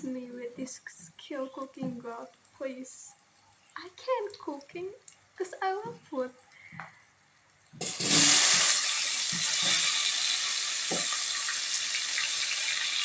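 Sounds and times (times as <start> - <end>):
food sizzling in frying pan: 7.8 - 13.0.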